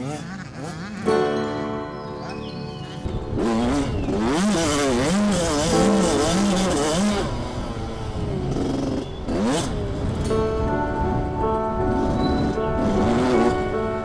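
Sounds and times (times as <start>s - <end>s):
motocross bike engine revving: 0.0s - 1.3s, 3.2s - 10.4s, 11.9s - 13.7s.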